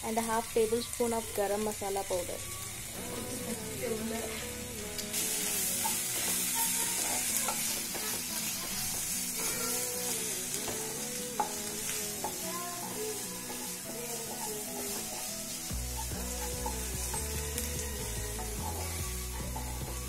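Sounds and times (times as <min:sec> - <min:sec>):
onions sizzling in hot oil: 0:00.0 - 0:20.0
spatula stirring and scraping: 0:04.1 - 0:20.0.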